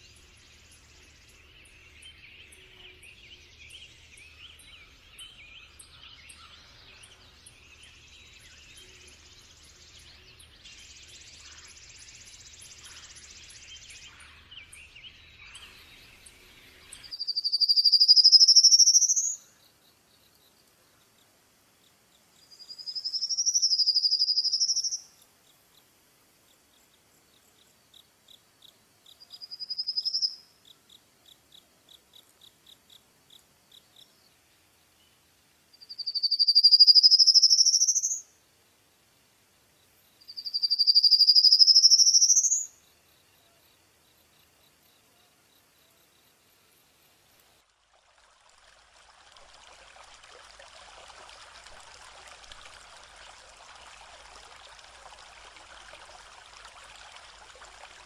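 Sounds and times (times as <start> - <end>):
birds chirping and twittering: 0.0 - 20.4
soft quick ticking chirps: 22.9 - 25.0.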